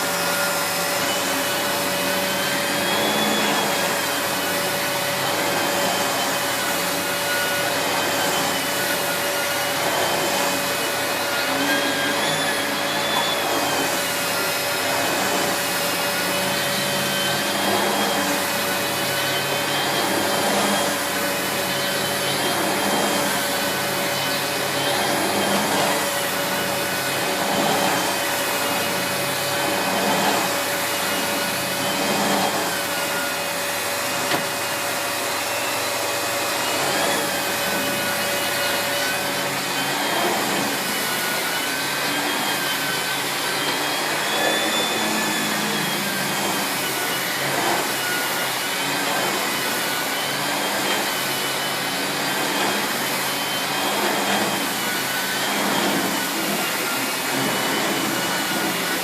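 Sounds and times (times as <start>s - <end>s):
vacuum head brushing over carpet: 0.0s - 34.6s, 51.6s - 59.0s
vacuum cleaner running: 0.0s - 59.0s.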